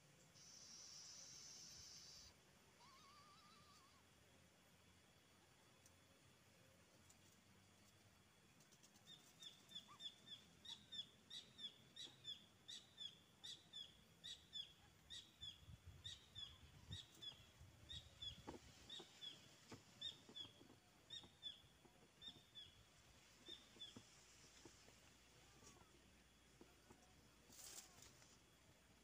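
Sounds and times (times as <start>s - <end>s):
bird chirping: 9.0s - 27.1s
soft rustles: 23.0s - 28.5s.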